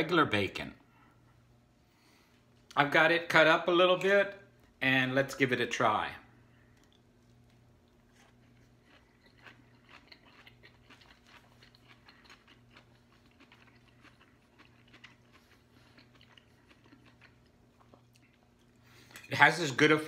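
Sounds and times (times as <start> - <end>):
low steady hum: 0.0 - 20.0
person chewing: 6.7 - 19.2.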